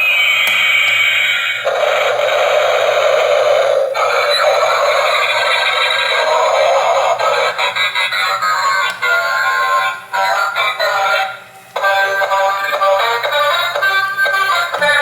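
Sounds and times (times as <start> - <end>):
tinny electronic tune from toy speaker: 11.8 - 15.0.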